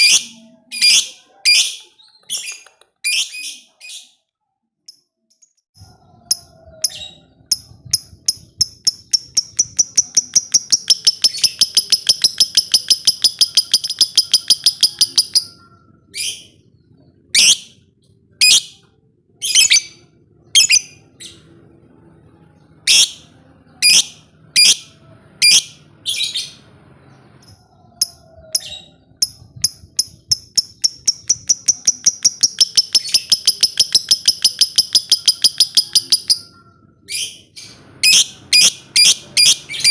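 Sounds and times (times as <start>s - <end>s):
bird chattering trill: 6.3s - 15.7s, 28.0s - 36.5s.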